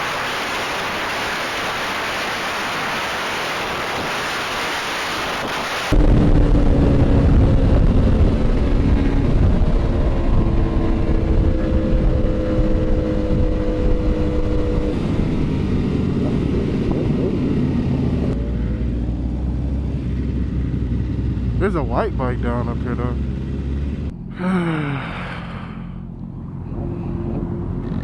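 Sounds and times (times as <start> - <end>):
motorcycle engine running: 6.0 - 24.4, 25.7 - 28.0.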